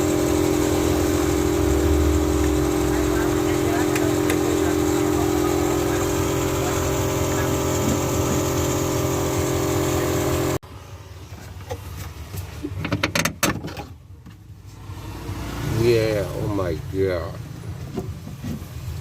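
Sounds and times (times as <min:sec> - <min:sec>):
motor with rushing air: 0:00.0 - 0:10.6.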